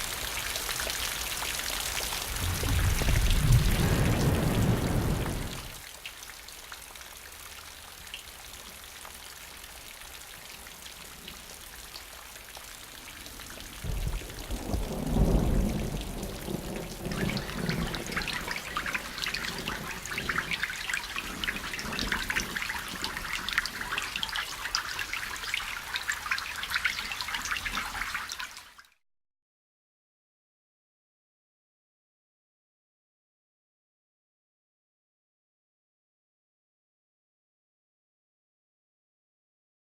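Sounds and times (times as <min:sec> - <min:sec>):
rain hissing: 0:00.0 - 0:05.9, 0:12.8 - 0:24.2
raindrops splashing on surfaces: 0:00.0 - 0:29.0
low rumble: 0:02.3 - 0:05.8.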